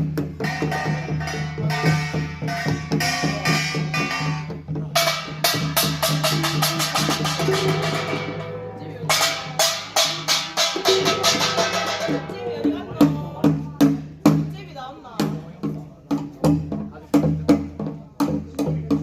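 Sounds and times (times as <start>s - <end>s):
drums: 0.0s - 19.0s
small gongs ringing: 0.4s - 13.4s.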